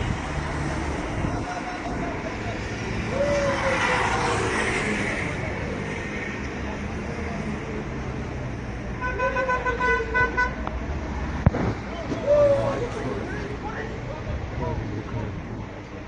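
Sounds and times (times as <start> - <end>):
vehicles passing: 0.0 - 16.0.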